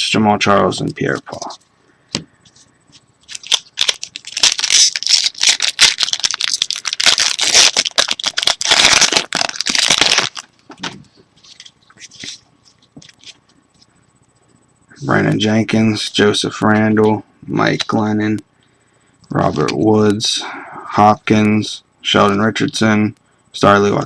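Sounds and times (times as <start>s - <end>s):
foil wrapper tearing and crinkling: 3.3s - 10.5s.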